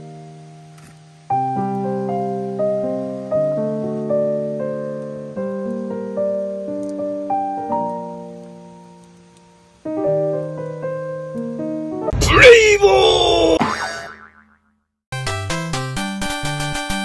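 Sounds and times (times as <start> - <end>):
slow solo piano chords: 0.0 - 12.1.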